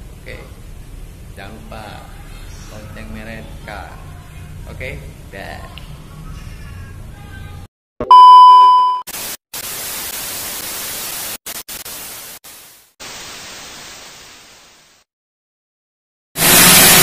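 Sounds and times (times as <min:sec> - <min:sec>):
steady loud beep: 0:08.1 - 0:09.0
static hiss: 0:09.1 - 0:15.1, 0:16.4 - 0:17.0.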